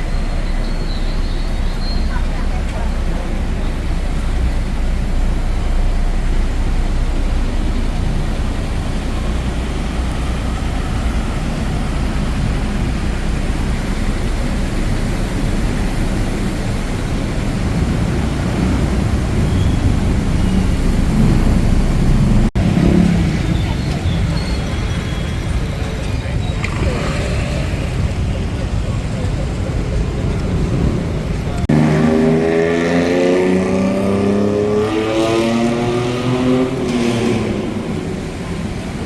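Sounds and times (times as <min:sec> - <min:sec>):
low rumble of city traffic: 0:00.0 - 0:39.0
tyres on wet road: 0:00.0 - 0:39.0
rain hissing: 0:01.1 - 0:31.7.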